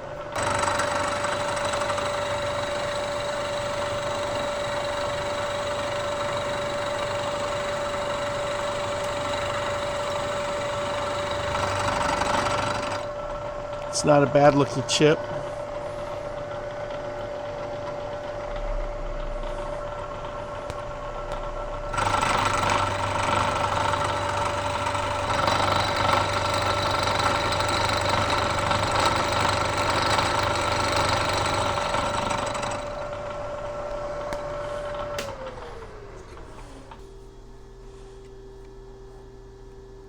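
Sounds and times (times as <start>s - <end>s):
spindle hum winding down: 0.0s - 40.0s
milling machine spindle cutting: 0.1s - 18.6s, 19.4s - 37.0s.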